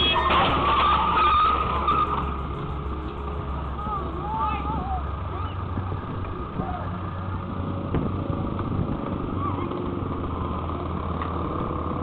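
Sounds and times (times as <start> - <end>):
faint wavering high sounds: 0.0 - 5.7
low engine hum: 0.0 - 12.0
road noise: 0.0 - 12.0.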